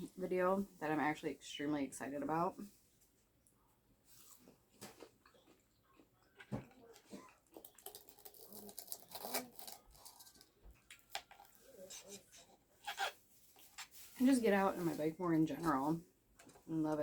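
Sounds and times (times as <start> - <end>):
chewing: 3.4 - 12.6.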